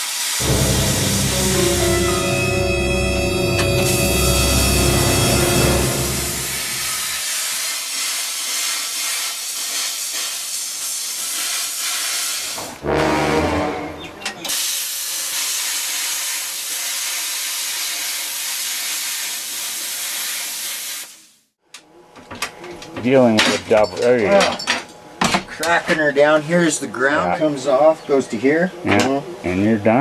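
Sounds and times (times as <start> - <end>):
plasma cutter hissing: 6.8 - 12.6, 14.4 - 21.2.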